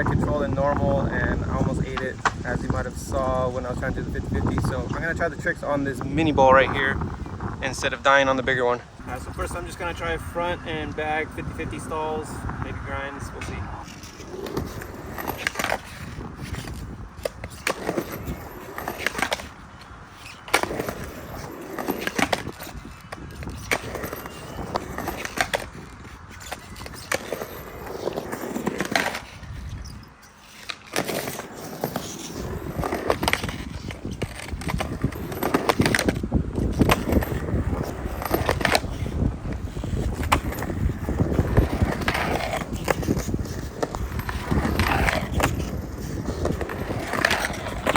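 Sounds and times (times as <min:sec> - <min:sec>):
skateboard trucks clacking and scraping: 0:00.0 - 0:07.0, 0:07.7 - 0:47.9
skateboard wheels rolling on concrete: 0:00.0 - 0:47.9.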